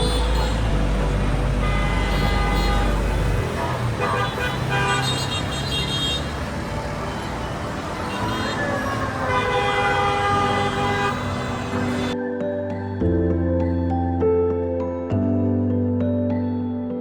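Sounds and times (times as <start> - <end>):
vehicle horns held tones: 0.0 - 6.4, 8.0 - 12.2
road traffic: 0.0 - 12.2.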